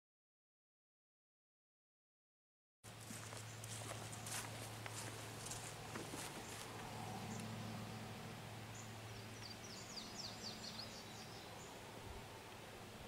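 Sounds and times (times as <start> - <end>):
faint low hum: 2.9 - 13.0
songbird chirping: 3.0 - 13.0.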